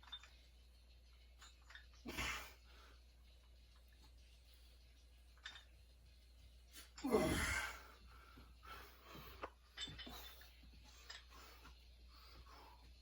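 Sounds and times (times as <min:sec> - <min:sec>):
faint breathing: 0:07.4 - 0:13.0.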